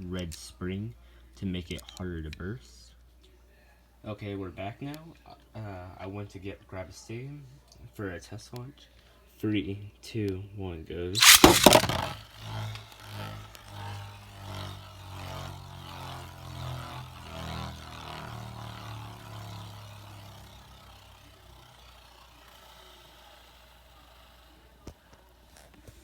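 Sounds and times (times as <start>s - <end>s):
launcher ripping: 11.2s - 12.2s
spinning top scraping in plastic bowl: 11.2s - 19.1s.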